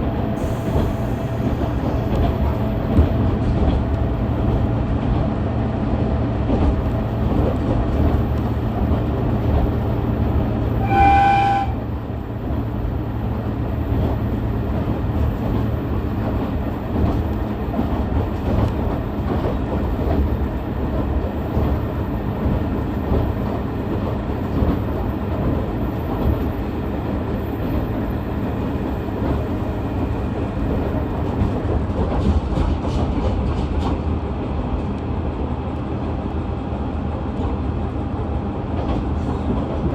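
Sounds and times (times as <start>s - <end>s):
railcar engine and wheel noise: 0.0s - 39.9s
train horn blast: 10.8s - 11.9s.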